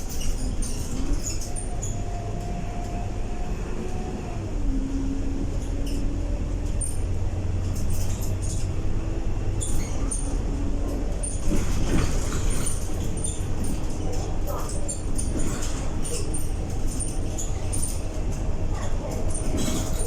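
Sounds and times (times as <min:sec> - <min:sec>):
bus engine low rumble: 0:00.0 - 0:20.0
bodywork clicks and rattles: 0:09.7 - 0:20.0.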